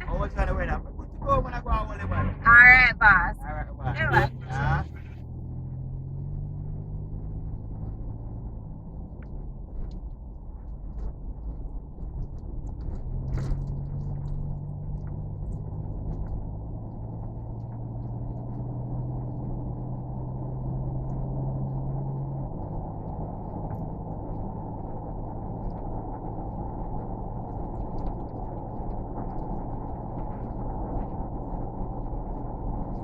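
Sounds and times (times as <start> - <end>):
engine rumble and hum: 0.0 - 33.0
faint light ticks: 9.2 - 18.7, 27.4 - 33.0.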